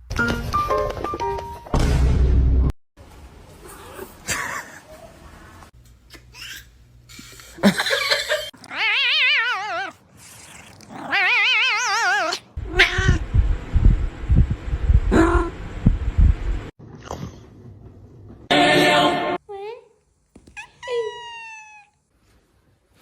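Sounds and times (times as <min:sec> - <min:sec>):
cat yowling: 0:08.6 - 0:13.0, 0:20.6 - 0:22.0.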